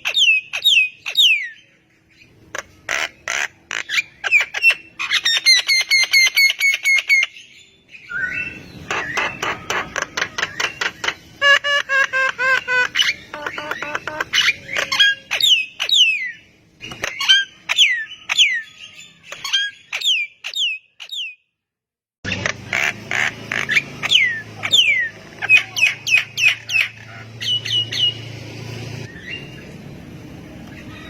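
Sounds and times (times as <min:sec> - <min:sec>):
bird singing with harsh clicks: 0:08.1 - 0:21.4.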